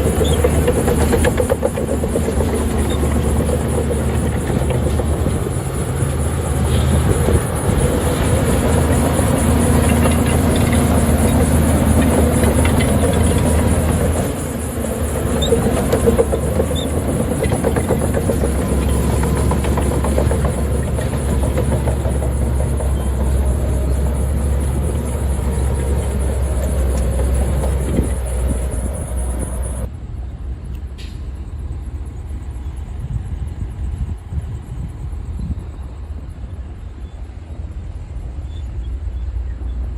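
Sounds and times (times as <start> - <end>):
diesel engine running under load: 0.0 - 29.9
metallic clanking and rattling: 0.0 - 29.9.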